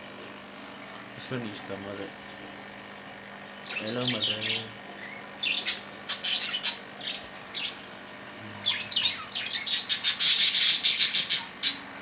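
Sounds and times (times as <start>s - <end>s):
budgerigars squawking and chirping: 3.6s - 8.0s, 8.6s - 11.9s.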